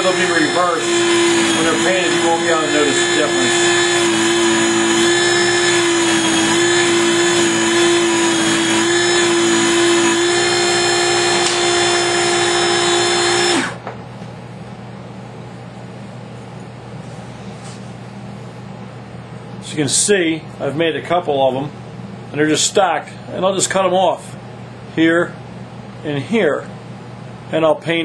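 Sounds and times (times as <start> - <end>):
power tool whining: 0.0 - 13.8.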